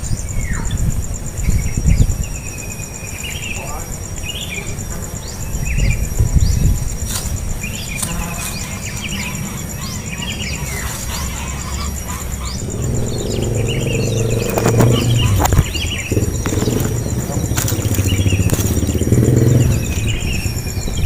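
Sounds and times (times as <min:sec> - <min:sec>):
birds chirping: 0:00.0 - 0:21.0
high insect drone: 0:00.0 - 0:21.0
low hum: 0:10.7 - 0:21.0.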